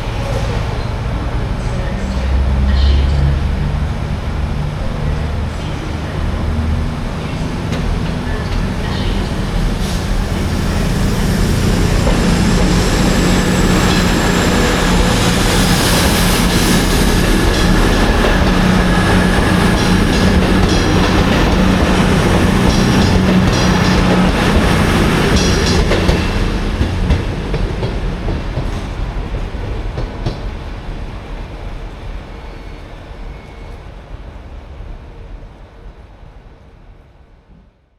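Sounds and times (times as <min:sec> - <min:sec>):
train running past: 0:00.0 - 0:37.9
wheels clacking over rail joints: 0:05.9 - 0:30.5.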